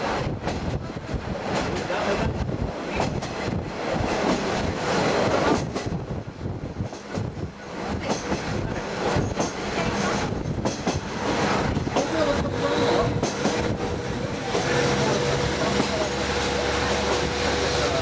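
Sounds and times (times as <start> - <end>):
train wheels rumbling on rails: 0.0 - 18.0
rushing air: 3.4 - 18.0.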